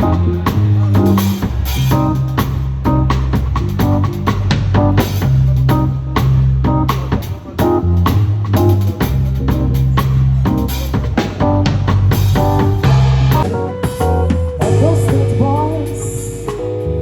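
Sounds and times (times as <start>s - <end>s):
deep bass notes: 0.0s - 17.0s
drum kit beating a groove: 0.0s - 17.0s
guitar chords: 12.8s - 17.0s.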